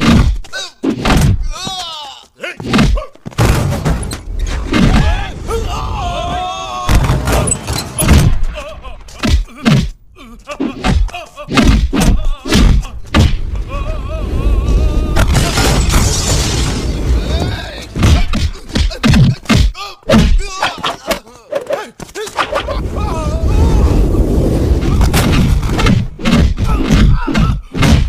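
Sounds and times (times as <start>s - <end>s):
men grunting and shouting: 8.2s - 15.9s, 17.2s - 24.0s, 26.4s - 28.0s
punch thuds: 10.9s - 13.4s, 18.0s - 20.5s, 25.1s - 28.0s.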